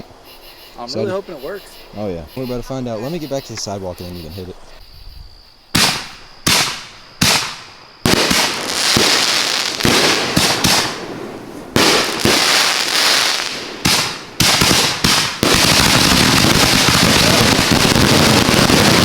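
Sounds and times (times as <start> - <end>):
fireworks bangs: 5.7 - 19.0.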